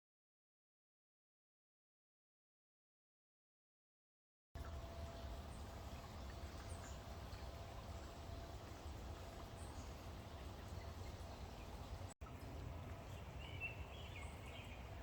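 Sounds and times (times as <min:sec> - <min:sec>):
low outdoor rumble: 0:04.6 - 0:15.0.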